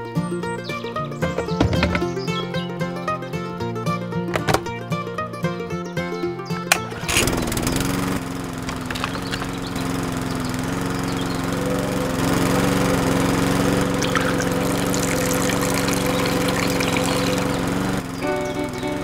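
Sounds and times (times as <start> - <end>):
small electric motor humming: 6.8 - 19.0.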